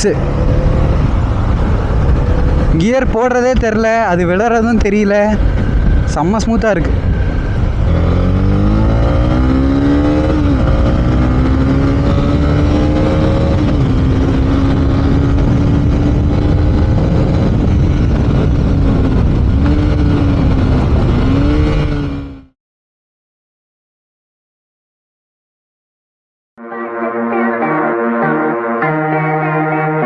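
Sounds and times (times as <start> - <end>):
motorcycle engine accelerating: 0.0 - 22.6.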